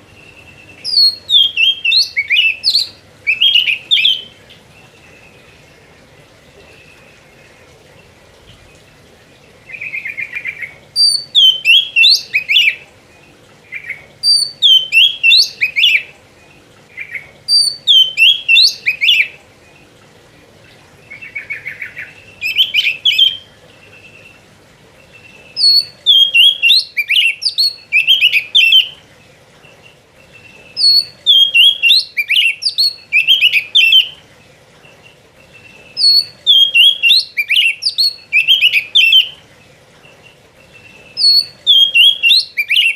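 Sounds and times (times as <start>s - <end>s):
bird whistled song: 0.0s - 4.4s, 9.7s - 12.8s, 13.7s - 16.1s, 17.0s - 19.4s, 21.1s - 24.4s, 25.2s - 29.0s, 30.4s - 34.2s, 35.6s - 39.4s, 40.8s - 42.9s.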